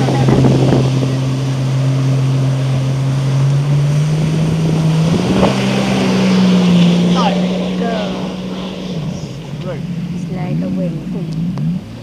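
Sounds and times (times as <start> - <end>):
jet ski engine running: 0.0 - 12.0.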